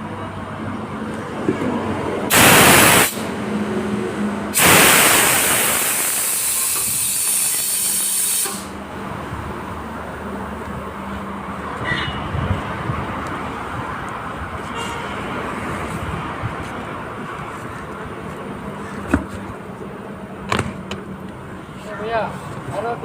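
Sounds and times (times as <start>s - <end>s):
compressed air hissing: 2.3s - 3.4s, 4.5s - 8.8s.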